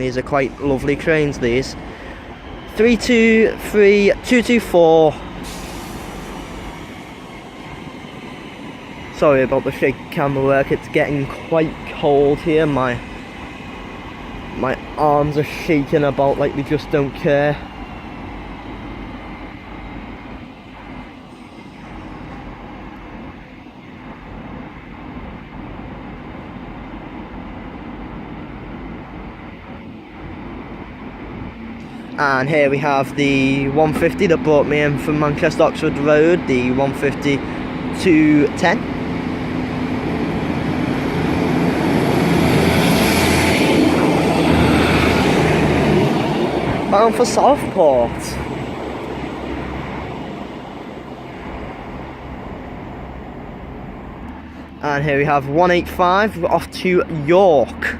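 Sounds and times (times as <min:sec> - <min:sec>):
faint high whine: 0:00.0 - 0:45.4
rail noise: 0:00.0 - 0:57.9
train rumbling: 0:00.0 - 0:57.9.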